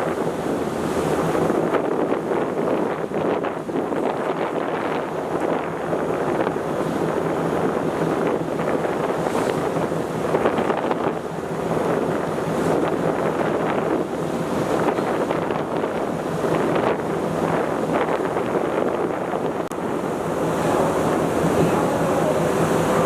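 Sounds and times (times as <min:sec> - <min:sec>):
low hum of ship: 0:00.0 - 0:23.0
rushing sea water: 0:00.0 - 0:23.0
wind buffeting microphone: 0:00.0 - 0:23.0.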